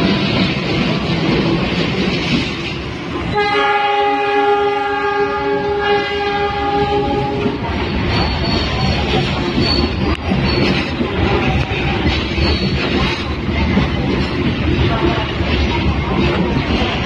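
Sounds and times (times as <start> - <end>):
moving train: 0.0 - 17.0
locomotive horn blast: 3.3 - 7.6.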